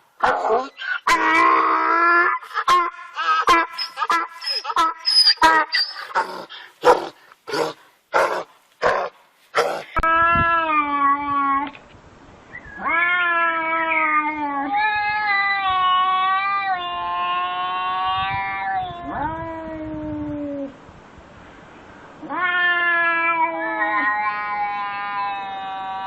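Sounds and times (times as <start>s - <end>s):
cat yowling: 12.8s - 20.7s, 22.2s - 26.0s.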